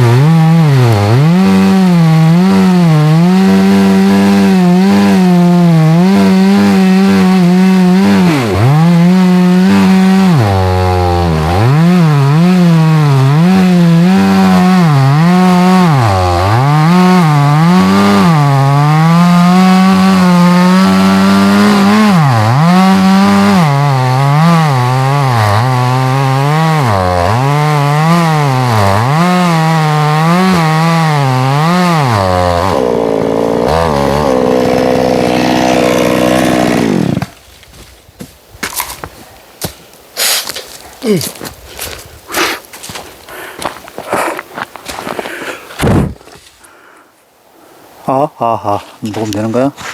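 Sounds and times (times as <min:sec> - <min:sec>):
chainsaw cutting wood: 0:00.0 - 0:37.4, 0:40.2 - 0:46.3.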